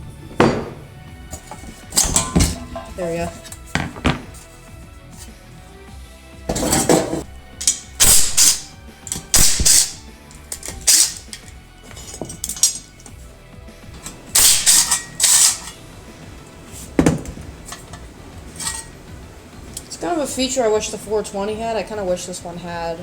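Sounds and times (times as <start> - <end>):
tools clicking and clattering: 0.4 - 4.5, 6.5 - 13.2, 14.0 - 15.8, 16.8 - 19.0
ratchet wrench: 14.4 - 15.8.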